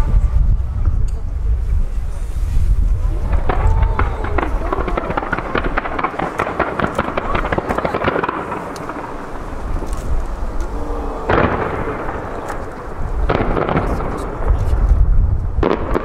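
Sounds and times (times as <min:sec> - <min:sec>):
fireworks cracks and bangs: 0:00.0 - 0:16.0
rumble of echoing booms: 0:02.8 - 0:16.0.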